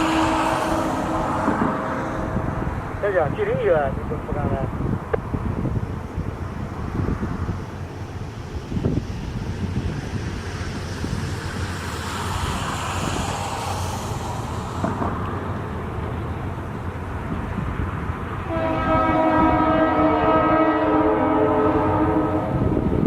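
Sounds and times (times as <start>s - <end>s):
train horn chord: 0.0s - 2.7s, 18.4s - 22.7s
diesel train rumbling: 0.0s - 23.0s.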